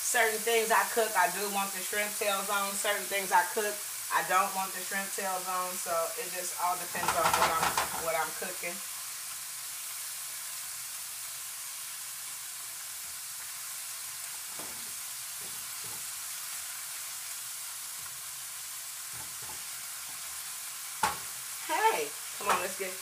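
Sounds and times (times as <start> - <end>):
chicken and shrimp sizzling in oil: 0.0 - 23.0
spatula stirring in frying pan: 6.9 - 8.4, 12.4 - 22.8.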